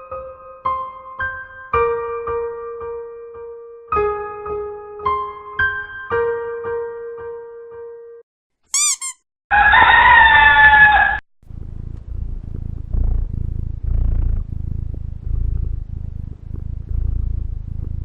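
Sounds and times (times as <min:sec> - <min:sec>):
short high chirps: 0:08.8 - 0:09.2
rooster crowing: 0:08.8 - 0:11.2
cat purring: 0:11.5 - 0:18.0.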